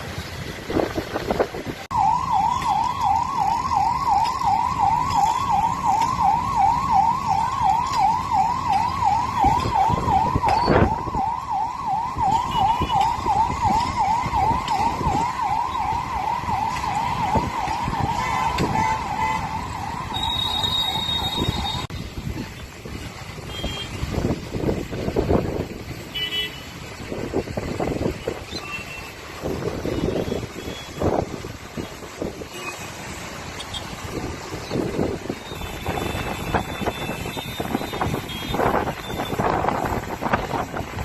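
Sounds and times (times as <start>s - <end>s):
road traffic noise: 0.0s - 41.0s
siren yelping: 1.9s - 21.9s, 35.3s - 40.8s.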